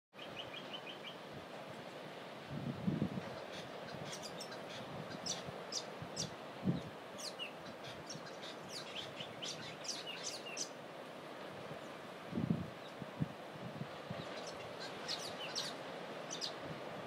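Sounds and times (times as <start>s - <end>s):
surf washing: 0.2s - 17.0s
small birds chirping: 3.3s - 10.8s, 14.2s - 16.6s.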